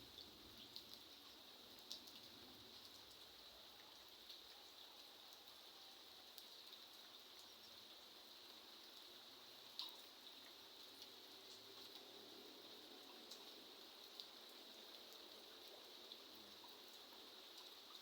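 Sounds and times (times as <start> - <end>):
light rain pattering: 0.0 - 18.0
single raindrops ticking: 0.1 - 3.2, 9.7 - 12.1.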